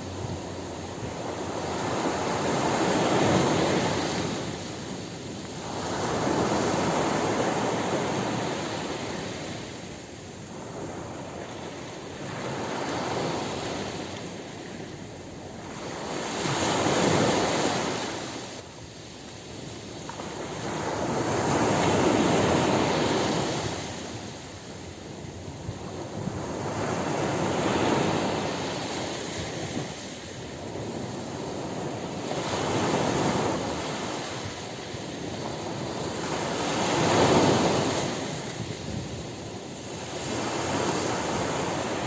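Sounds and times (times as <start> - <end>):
ocean waves breaking on beach: 0.0 - 42.0.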